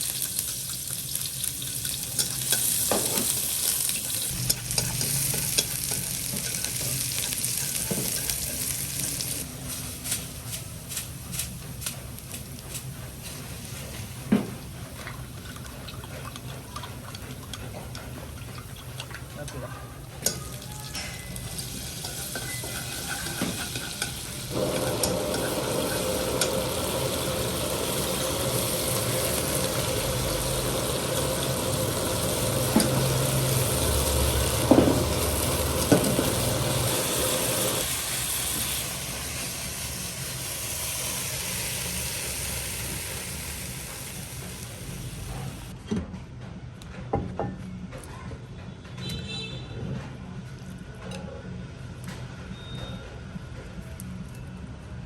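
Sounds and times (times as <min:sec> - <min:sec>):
food sizzling in a hot pan: 0:00.0 - 0:11.5, 0:20.2 - 0:45.7
utensils clinking: 0:18.5 - 0:26.7.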